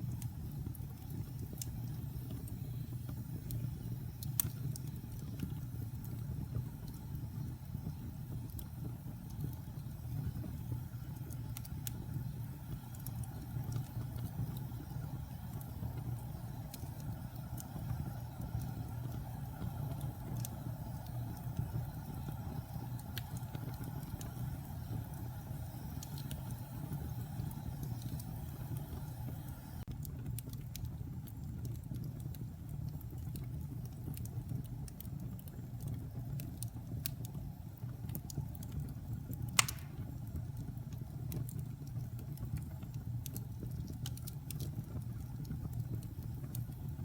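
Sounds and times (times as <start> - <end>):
low rumble of flames: 0.0 - 47.0
logs crackling and snapping: 38.1 - 40.4, 43.3 - 45.8.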